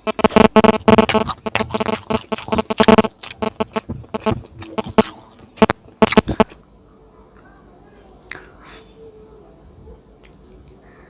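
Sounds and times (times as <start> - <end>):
wet chewing and mouth smacks: 0.0 - 6.6.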